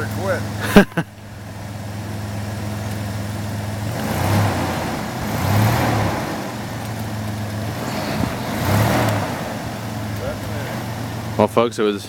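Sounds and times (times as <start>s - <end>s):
car engine revving: 0.0s - 12.0s
wheels spinning in snow: 4.5s - 10.8s.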